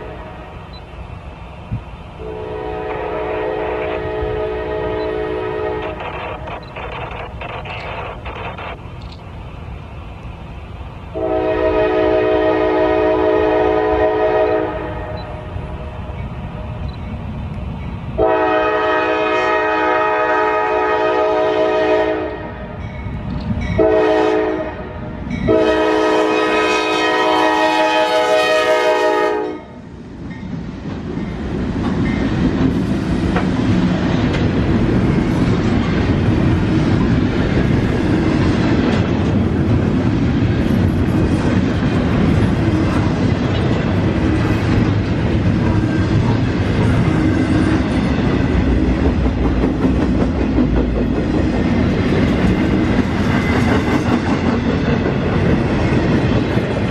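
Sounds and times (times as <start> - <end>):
locomotive air horn blasts: 0.0 - 0.5, 2.2 - 6.0, 11.2 - 15.2, 18.2 - 22.6, 23.8 - 29.8
train rumbling past: 0.0 - 56.9
wheels clacking on rail joints: 30.4 - 56.9.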